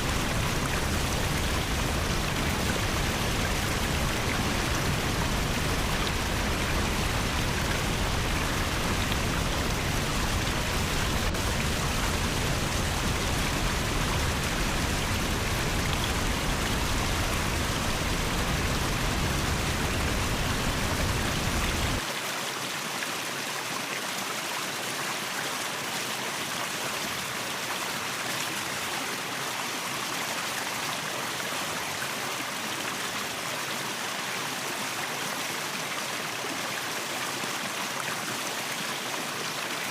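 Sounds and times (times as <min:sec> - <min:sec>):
waterfall rushing: 0:00.0 - 0:22.2.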